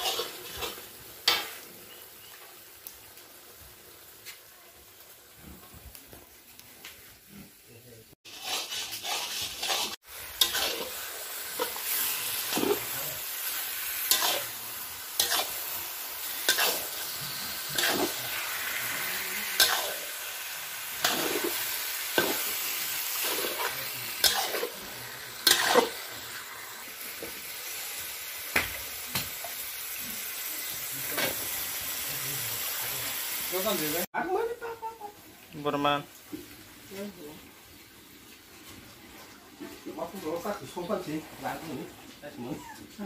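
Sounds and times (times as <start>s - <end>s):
spatula scraping pan: 0.0s - 1.6s, 8.2s - 13.2s, 14.0s - 14.6s, 15.2s - 15.7s, 16.3s - 20.1s, 23.2s - 26.0s
meat sizzling in a wok: 0.0s - 43.0s.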